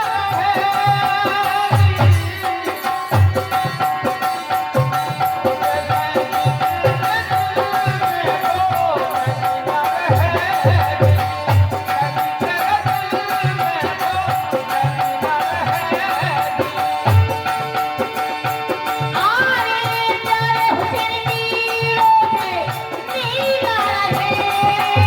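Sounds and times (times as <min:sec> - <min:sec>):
hand drum beat: 0:00.0 - 0:19.4.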